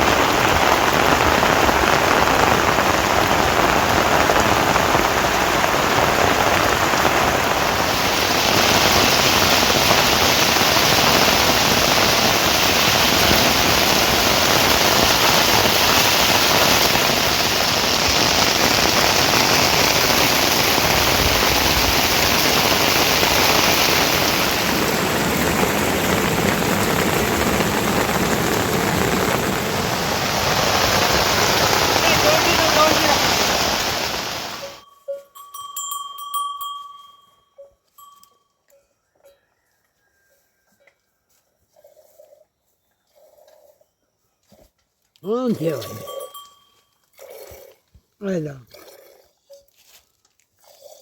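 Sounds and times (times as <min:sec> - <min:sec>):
heavy rain falling: 0:00.0 - 0:34.8.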